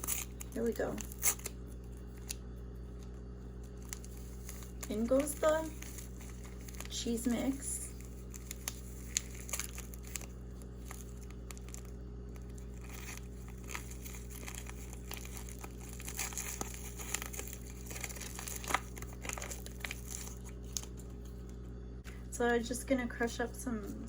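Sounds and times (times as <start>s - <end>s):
plastic packaging crinkling: 0.0s - 21.6s.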